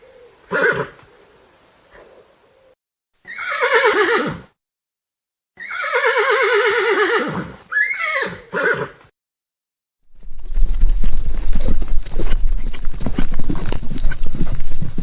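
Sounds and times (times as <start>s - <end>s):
horse whinnying: 0.5s - 1.0s, 3.2s - 4.5s, 5.6s - 9.0s.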